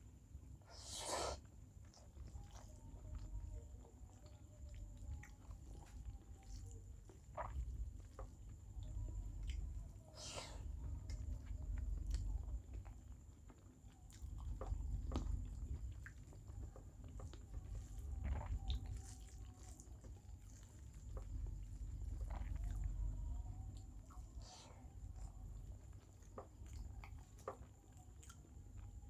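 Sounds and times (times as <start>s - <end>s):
person chewing food: 0.6s - 29.0s.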